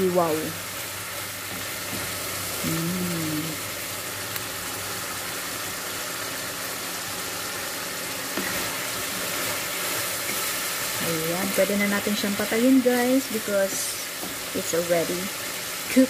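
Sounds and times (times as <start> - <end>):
meat sizzling in a frying pan: 0.0 - 16.0
person humming: 2.6 - 3.6.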